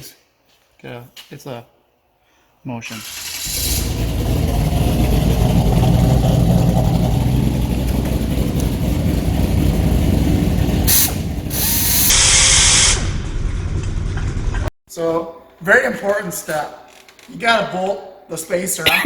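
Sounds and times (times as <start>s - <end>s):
car engine running: 3.2s - 12.0s
short bursts of hiss: 10.9s - 13.0s.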